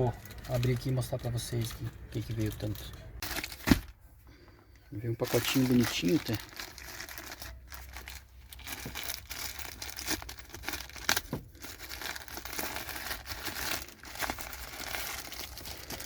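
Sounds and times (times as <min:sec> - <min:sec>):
package wrapping crinkling: 0:00.0 - 0:03.9, 0:05.2 - 0:16.0
wrapping snapping: 0:05.3 - 0:16.0.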